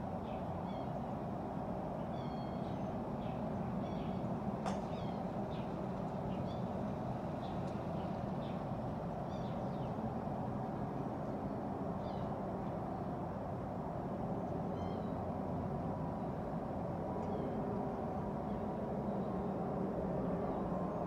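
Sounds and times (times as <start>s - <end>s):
small birds chirping: 2.2s - 10.0s.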